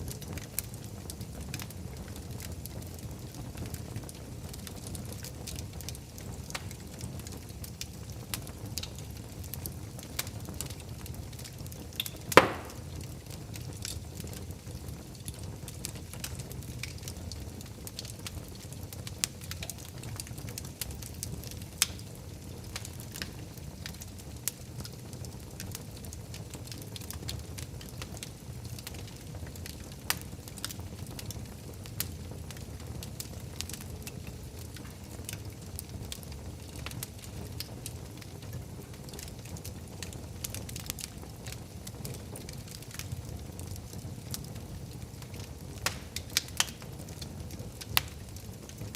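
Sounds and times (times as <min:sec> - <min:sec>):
fire crackling: 0:00.0 - 0:48.9
fire flames rumbling: 0:00.0 - 0:48.9
loud pop of fire: 0:12.0 - 0:13.4, 0:45.8 - 0:46.7.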